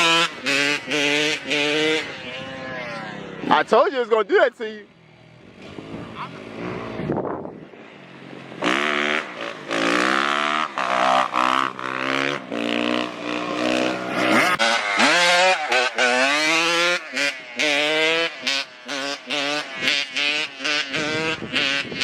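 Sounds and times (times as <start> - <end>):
dirt bike engine revving: 8.6 - 21.8.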